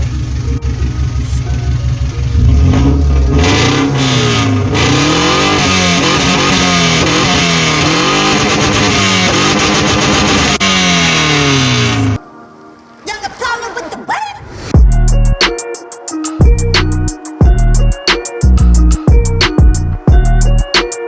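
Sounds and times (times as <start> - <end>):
car engine idling and revving: 0.0 - 12.2.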